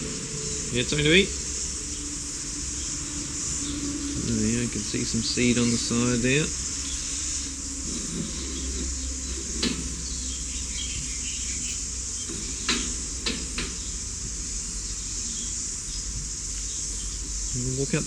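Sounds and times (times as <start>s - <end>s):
insects chirring: 0.0s - 18.0s
sharp knocks: 7.9s - 14.6s.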